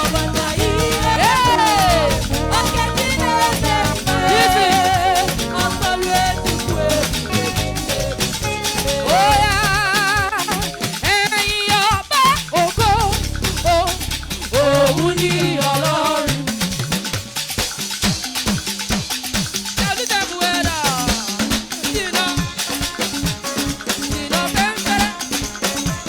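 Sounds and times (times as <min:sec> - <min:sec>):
drums and shakers beat: 0:00.0 - 0:26.0
melody with vibrato: 0:12.8 - 0:16.4.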